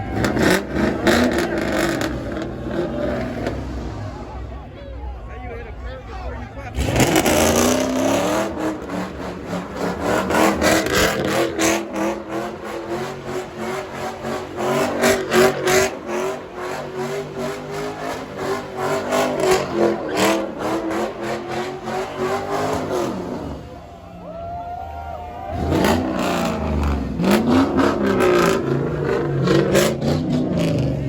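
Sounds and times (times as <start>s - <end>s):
car engine at high revs: 0.0s - 4.7s, 6.6s - 23.9s, 25.4s - 31.0s
engine crackling: 0.0s - 24.2s, 24.9s - 31.0s.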